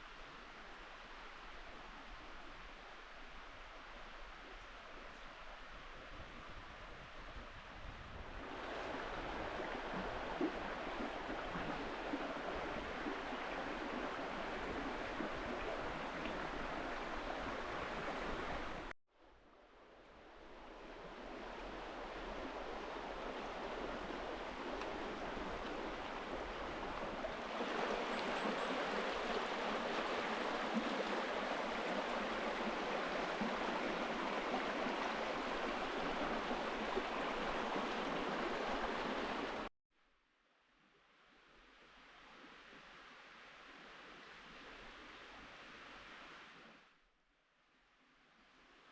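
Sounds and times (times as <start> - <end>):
river flowing: 8.4 - 18.9, 19.7 - 39.7.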